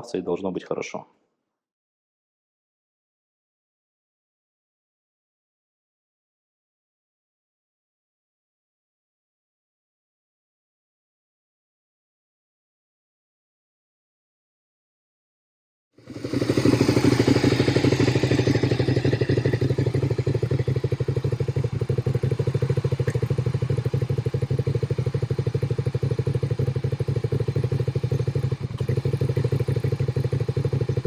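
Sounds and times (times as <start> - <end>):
motorcycle engine running: 16.0 - 31.0.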